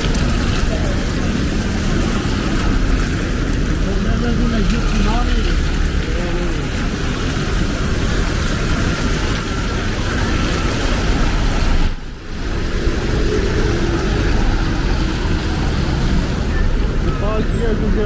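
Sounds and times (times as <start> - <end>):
rain: 0.0 - 18.0
street traffic: 0.0 - 18.0.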